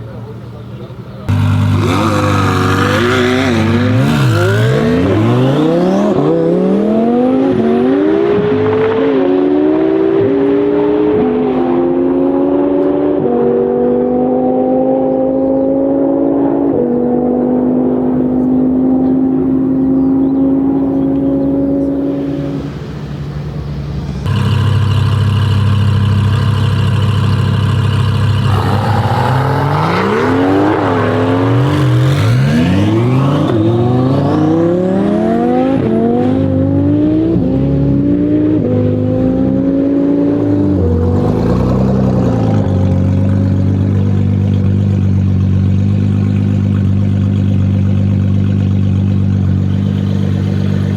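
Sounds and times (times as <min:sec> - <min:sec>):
sports car engine accelerating: 0:01.2 - 0:23.0, 0:24.0 - 0:50.9.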